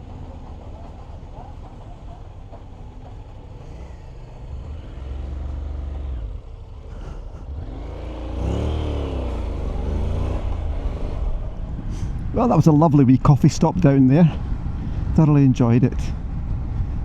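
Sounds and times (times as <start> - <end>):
motorcycle engine accelerating: 3.0 - 12.7
low wind rumble: 6.0 - 17.0.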